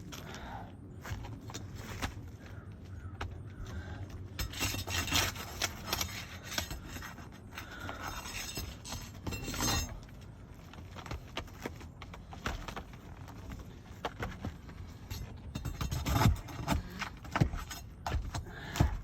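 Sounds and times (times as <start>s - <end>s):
scraping on roof shingles: 1.6s - 10.0s.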